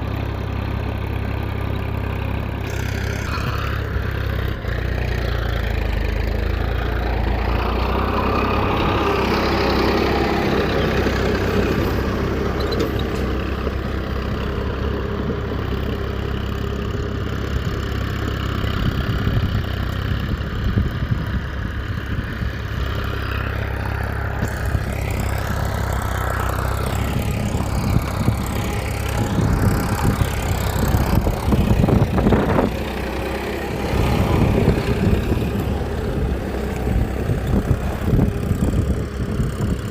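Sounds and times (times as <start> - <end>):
small motor running: 2.6 - 3.9.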